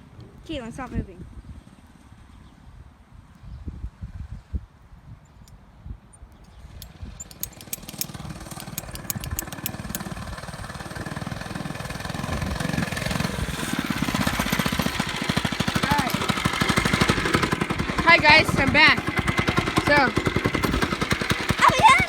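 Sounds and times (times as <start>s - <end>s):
sharp ticks: 6.4s - 10.3s
small bike engine approaching: 6.5s - 22.0s.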